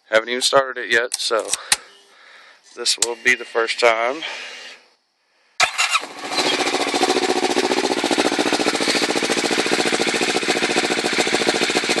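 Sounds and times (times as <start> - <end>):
motorcycle engine idling: 5.7 - 12.0.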